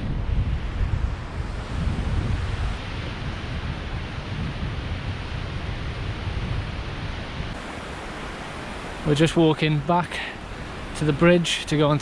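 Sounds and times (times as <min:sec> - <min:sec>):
wind buffeting microphone: 0:00.0 - 0:12.0
waterfall roaring: 0:07.5 - 0:12.0.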